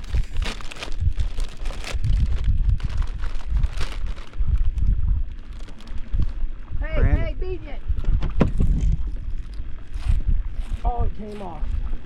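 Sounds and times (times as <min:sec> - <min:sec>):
rustles and clicks: 0:00.0 - 0:06.5
wind buffeting the microphone: 0:00.0 - 0:12.0.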